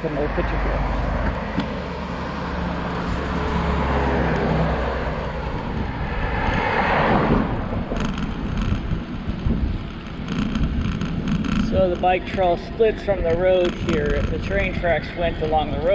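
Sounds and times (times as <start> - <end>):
car driving past: 0.0 - 8.4.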